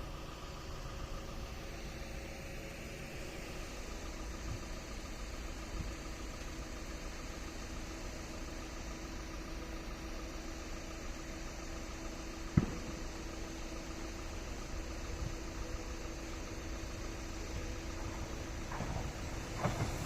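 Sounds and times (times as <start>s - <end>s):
idling vehicle hum: 0.0s - 20.0s
sharp thump: 12.5s - 13.2s.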